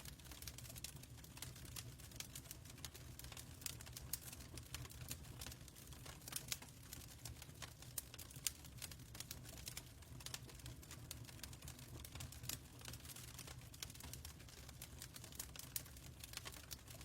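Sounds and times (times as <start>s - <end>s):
fireplace crackling: 0.0s - 17.0s.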